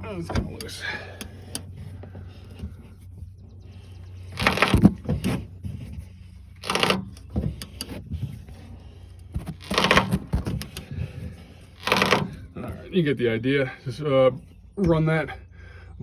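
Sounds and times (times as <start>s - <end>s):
ratchet clicking: 6.6s - 8.0s, 11.8s - 12.3s.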